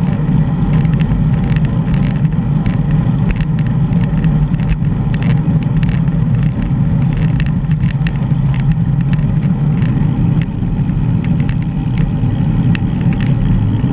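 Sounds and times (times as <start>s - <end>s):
sharp clicks and rattles: 0.0s - 13.9s
wind rumble on camera: 0.0s - 13.9s.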